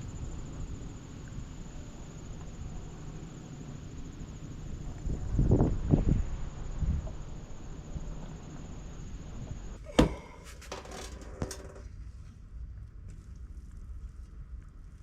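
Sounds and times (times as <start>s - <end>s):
wind on microphone: 4.5s - 9.8s.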